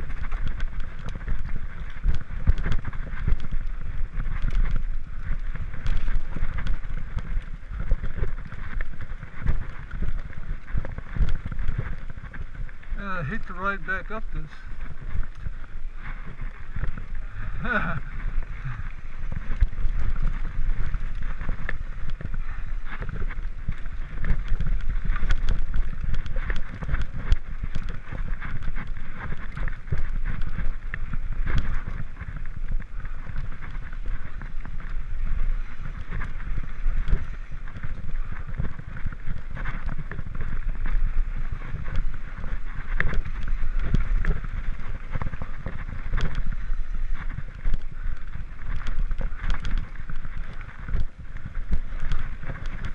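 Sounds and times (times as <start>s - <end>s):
bike clicks and rattles: 0.0s - 52.9s
bike tyre noise: 0.0s - 52.9s
wind rumble on microphone: 0.0s - 52.9s.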